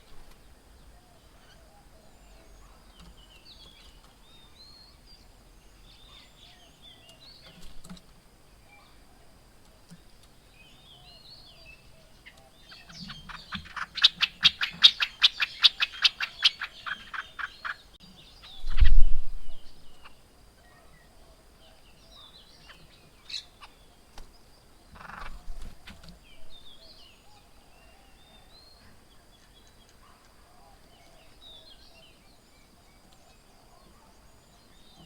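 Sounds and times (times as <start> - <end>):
soft bird chirps: 0.0 - 35.0.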